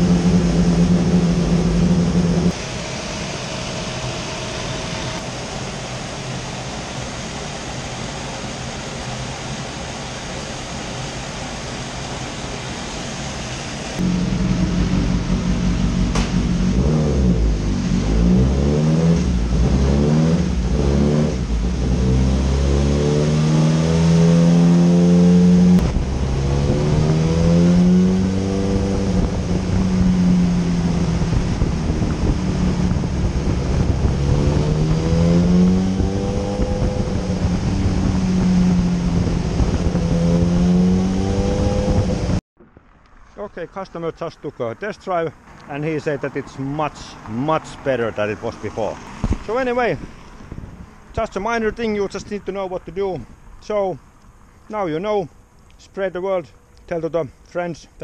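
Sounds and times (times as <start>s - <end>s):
motorcycle engine revving: 0.0s - 6.4s, 13.8s - 42.8s.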